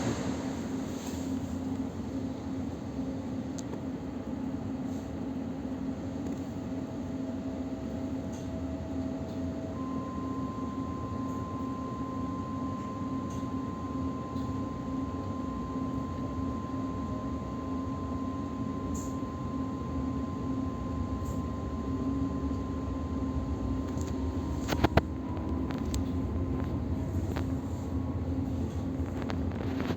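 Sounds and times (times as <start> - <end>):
train rumble: 0.0 - 4.3, 23.6 - 29.9
thin electric whine: 8.6 - 29.9.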